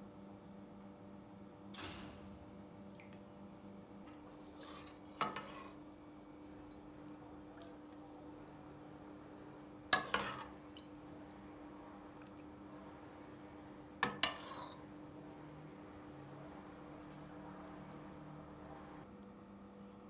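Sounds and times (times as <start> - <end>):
dishes and utensils clattering: 4.1 - 5.8, 10.0 - 10.5, 14.0 - 14.8.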